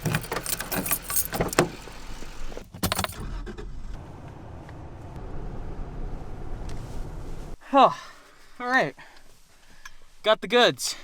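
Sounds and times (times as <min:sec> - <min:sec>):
vehicle rumble: 0:00.0 - 0:07.6.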